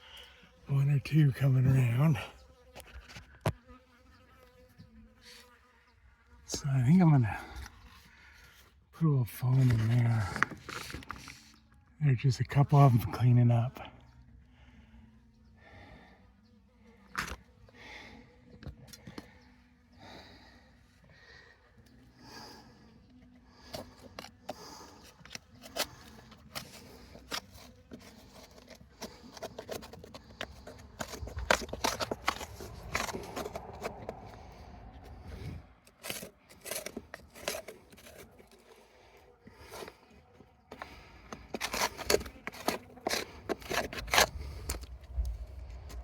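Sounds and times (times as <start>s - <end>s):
hands clicking and scraping materials: 23.7s - 38.8s, 40.7s - 46.0s.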